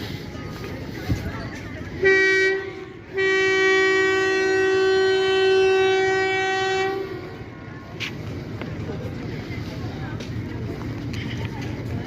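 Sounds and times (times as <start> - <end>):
locomotive air horn blasts: 2.0 - 7.4.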